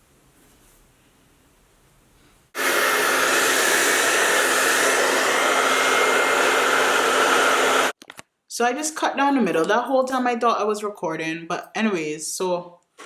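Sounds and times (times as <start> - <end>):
hair dryer blowing: 2.6 - 8.0.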